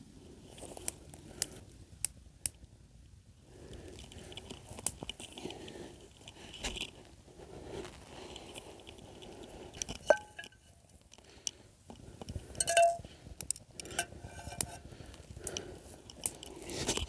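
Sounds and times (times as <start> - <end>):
cookware clicks and knocks: 10.1 - 10.6, 12.6 - 13.0, 13.9 - 14.8
ringing metallic clinks: 12.6 - 13.0.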